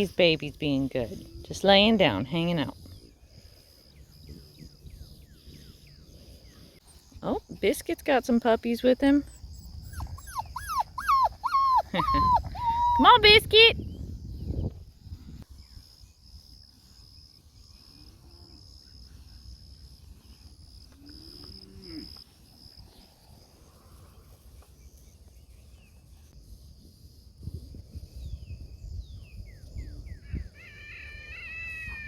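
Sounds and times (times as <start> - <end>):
insect trill: 0.0 - 32.0
low wind rumble: 9.2 - 15.9, 25.4 - 30.6
puppies whimpering: 9.3 - 13.6.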